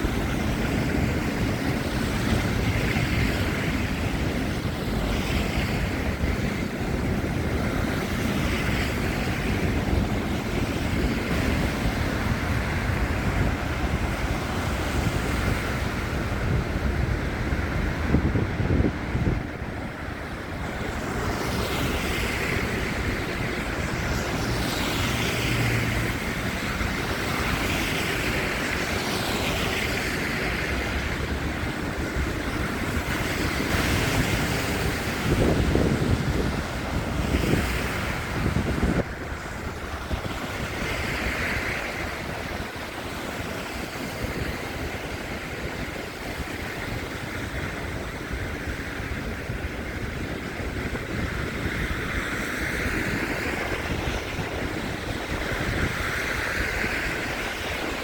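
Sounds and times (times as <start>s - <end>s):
wind on microphone: 0.0s - 58.0s
city traffic noise: 9.1s - 43.6s.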